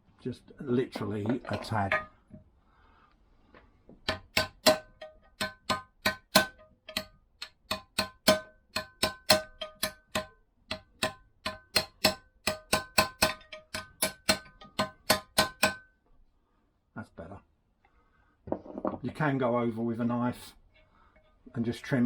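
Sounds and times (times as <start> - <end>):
hammer tapping metal: 1.0 - 2.4, 4.0 - 15.9.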